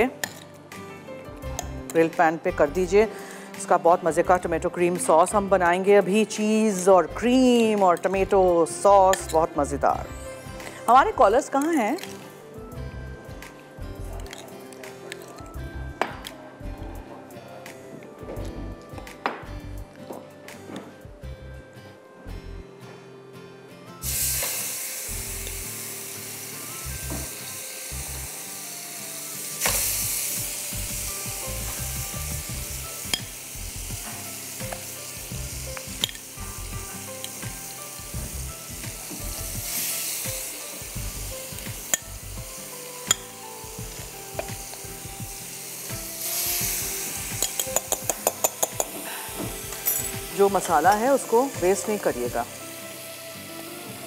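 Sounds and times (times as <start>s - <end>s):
chicken sizzling on a grill pan: 24.0s - 49.4s, 50.2s - 54.0s.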